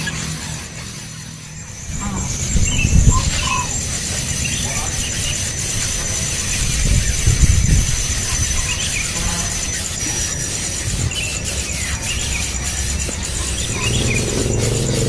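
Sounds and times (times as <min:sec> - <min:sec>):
birds squealing calls: 0:00.0 - 0:15.0
thin high-pitched drone: 0:00.7 - 0:15.0
low rumble: 0:13.5 - 0:15.0.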